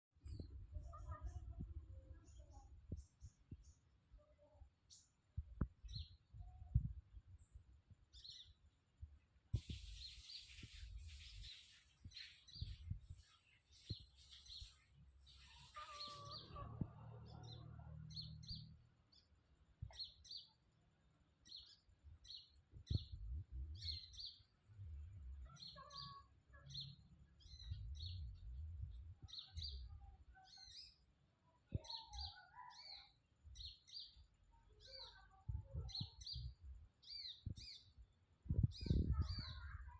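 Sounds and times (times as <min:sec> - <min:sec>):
small bird chirping: 0:00.3 - 0:08.8, 0:09.5 - 0:20.7, 0:21.4 - 0:39.9
low rumble: 0:23.0 - 0:24.1, 0:27.5 - 0:30.0.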